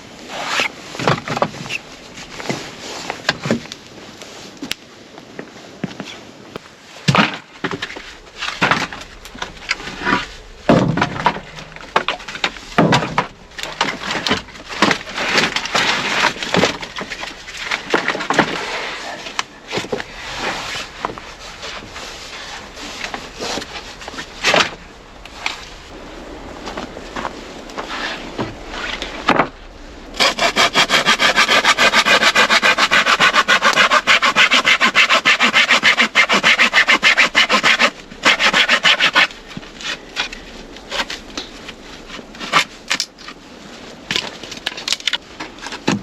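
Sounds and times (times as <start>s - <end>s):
wood knocking and cracking: 7.0s - 18.6s, 44.1s - 46.0s
wood snapping and rustling: 7.0s - 26.0s, 26.7s - 46.0s.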